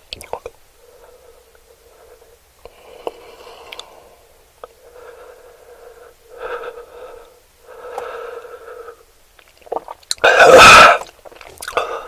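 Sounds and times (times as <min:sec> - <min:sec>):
eating and mouth sounds: 0:00.0 - 0:00.6, 0:03.0 - 0:03.9, 0:09.3 - 0:12.0.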